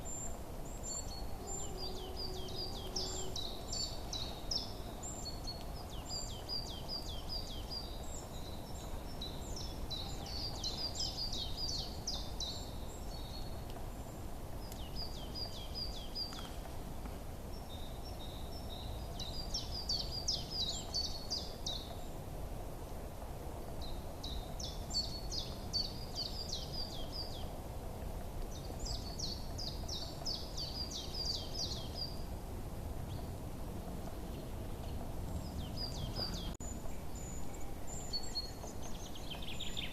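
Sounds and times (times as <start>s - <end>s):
songbird twittering: 0.0s - 13.6s, 28.5s - 32.3s
low background noise: 0.0s - 39.9s.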